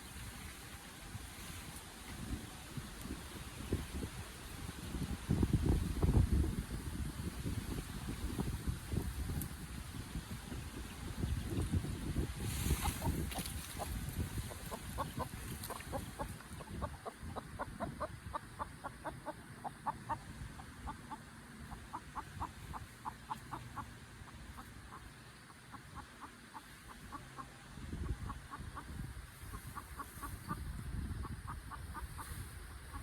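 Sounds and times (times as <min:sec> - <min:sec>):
chickens clucking: 0:11.2 - 0:33.0.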